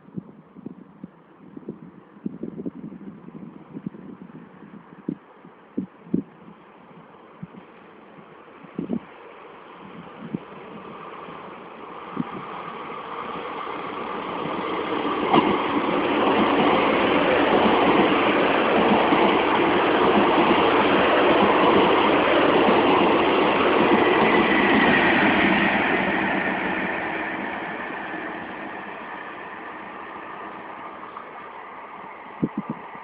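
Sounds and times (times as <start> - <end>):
train passing: 7.2 - 33.0.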